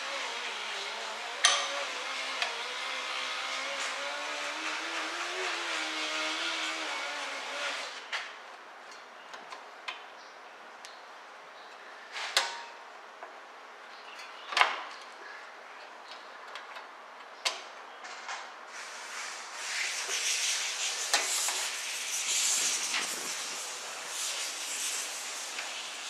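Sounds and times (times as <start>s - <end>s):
steady hiss: 18.7s - 26.0s.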